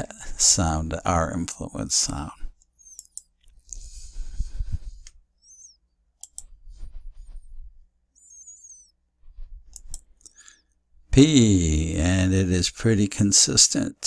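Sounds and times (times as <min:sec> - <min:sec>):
low steady hum: 0:00.0 - 0:14.0
computer mouse clicks: 0:02.6 - 0:03.6, 0:05.0 - 0:06.6, 0:09.7 - 0:10.4
faint short high chirps: 0:08.2 - 0:09.0.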